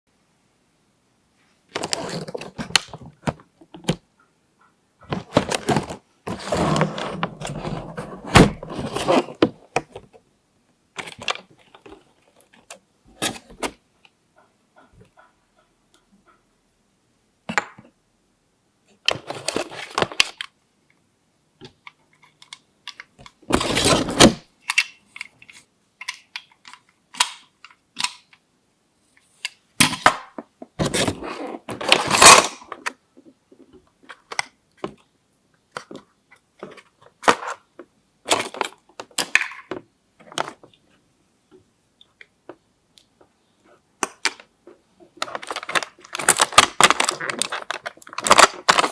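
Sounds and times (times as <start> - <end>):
packaging rustling: 1.7 - 3.4, 45.2 - 48.9.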